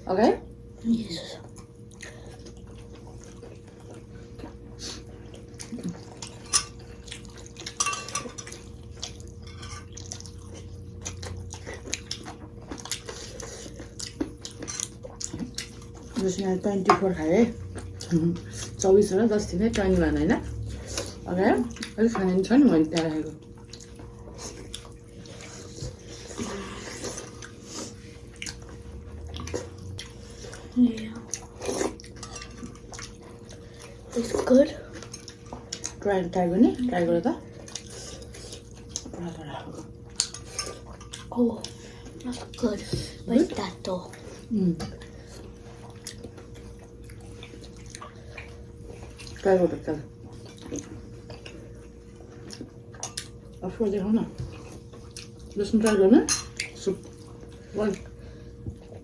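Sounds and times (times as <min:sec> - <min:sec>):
faint steady hum: 0:00.0 - 0:59.0
wet soup-eating sounds: 0:01.4 - 0:16.4, 0:17.2 - 0:36.0, 0:36.8 - 0:53.6, 0:54.3 - 0:55.6, 0:56.3 - 0:59.0
cutlery clicking on plates: 0:07.7 - 0:08.6.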